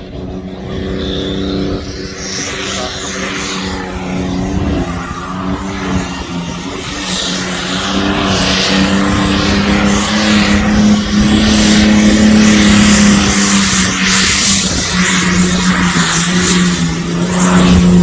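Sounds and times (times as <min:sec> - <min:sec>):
pulling tractor engine at full power: 0:00.0 - 0:18.0.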